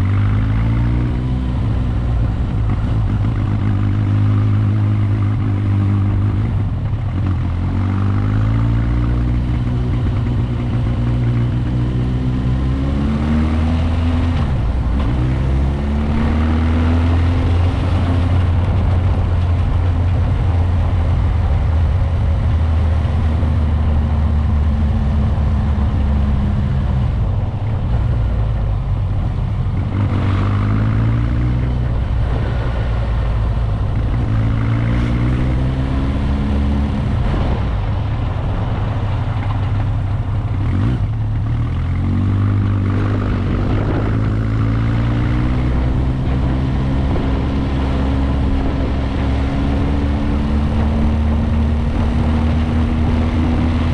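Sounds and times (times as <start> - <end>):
motorcycle engine accelerating: 0.0 - 53.9
wind and road noise: 0.0 - 53.9.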